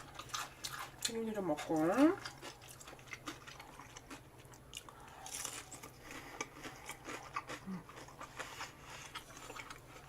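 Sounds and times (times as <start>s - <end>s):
crunching fried snacks: 2.2s - 10.0s.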